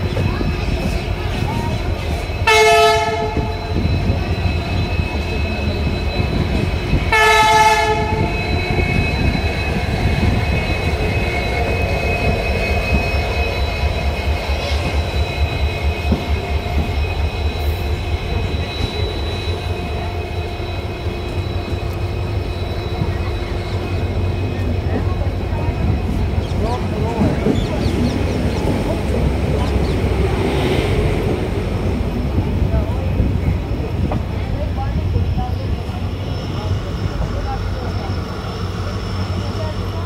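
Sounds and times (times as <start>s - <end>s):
train wheels rumbling on rails: 0.0s - 40.0s
locomotive horn blasts: 2.4s - 3.7s, 7.1s - 9.2s.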